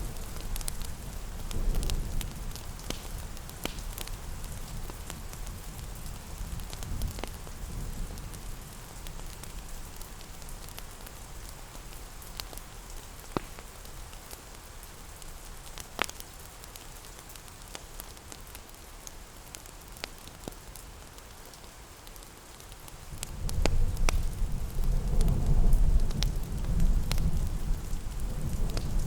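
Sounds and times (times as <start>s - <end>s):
rain hiss: 0.0s - 29.0s
wood fire crackling: 0.0s - 29.0s.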